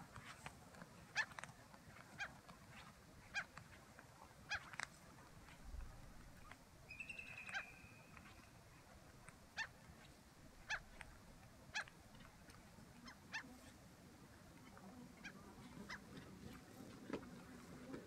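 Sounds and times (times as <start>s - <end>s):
short sharp bird calls: 6.9s - 8.4s
thin high bird whistle: 6.9s - 8.5s.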